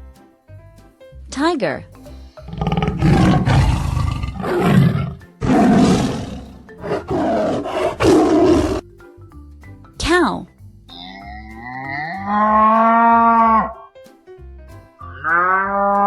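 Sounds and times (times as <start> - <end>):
tiger roaring: 2.5 - 8.8, 11.7 - 13.8.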